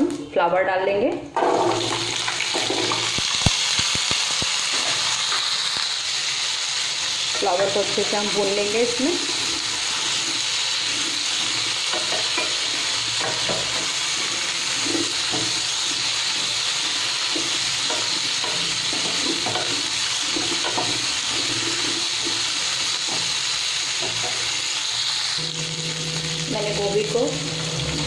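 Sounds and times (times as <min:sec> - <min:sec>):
food sizzling in hot oil: 0:01.4 - 0:28.0
spatula scraping a pan: 0:09.2 - 0:26.4.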